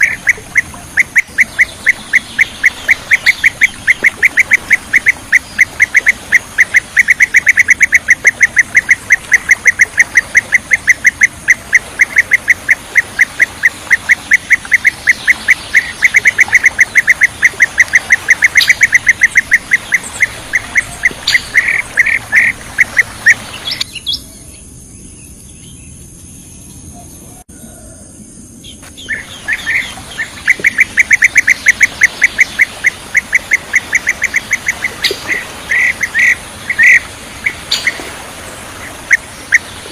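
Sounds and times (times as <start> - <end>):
bird chirping calls: 0.0 - 26.0, 28.6 - 39.9.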